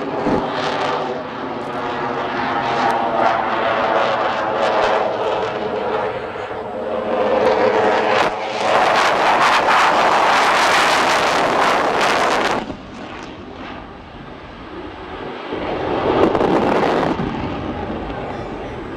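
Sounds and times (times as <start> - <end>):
aircraft engine: 0.0 - 18.9.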